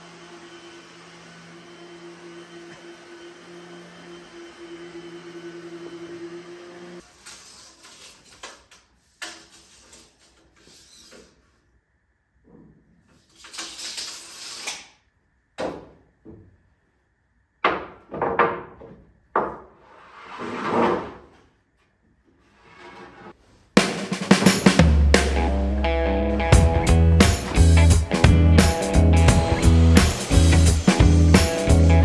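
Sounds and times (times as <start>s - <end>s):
wood scraping: 18.0s - 25.7s.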